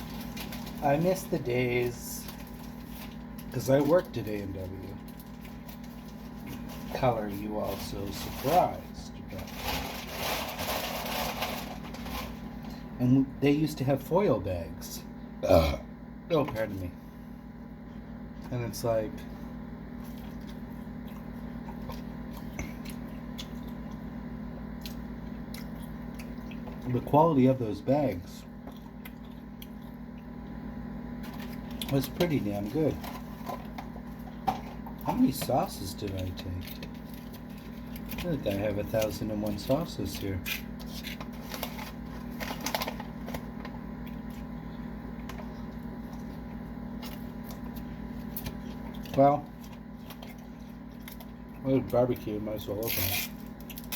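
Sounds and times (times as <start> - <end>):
steady low hum: 0.0 - 53.9
person chewing food: 19.9 - 26.9, 28.6 - 30.7.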